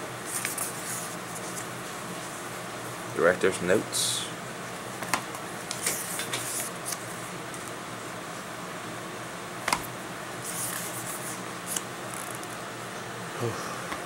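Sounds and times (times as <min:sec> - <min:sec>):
steady low hum: 0:00.0 - 0:14.0
paper pages rustling: 0:05.8 - 0:07.0.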